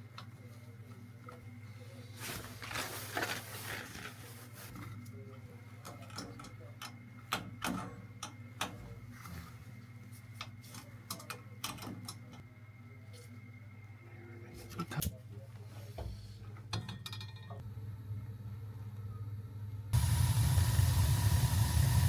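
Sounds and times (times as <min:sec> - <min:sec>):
steady low hum: 0:04.3 - 0:22.0.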